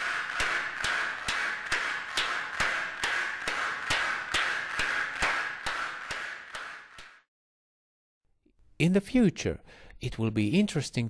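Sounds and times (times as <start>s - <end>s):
rhythmic hand clapping: 0.0s - 7.3s.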